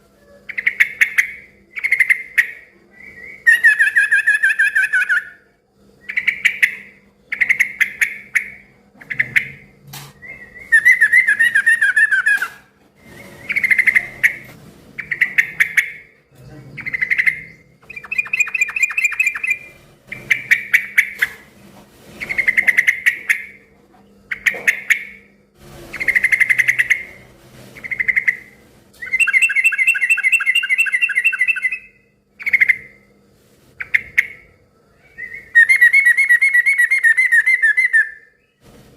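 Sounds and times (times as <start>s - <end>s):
bulbul chattering song: 0.5s - 5.4s, 6.0s - 21.4s, 22.2s - 23.7s, 24.3s - 27.2s, 27.8s - 33.1s.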